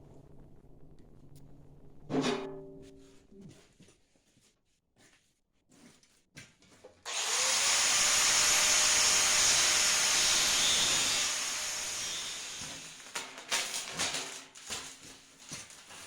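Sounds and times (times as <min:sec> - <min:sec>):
power tool motor hissing: 0:07.1 - 0:13.2.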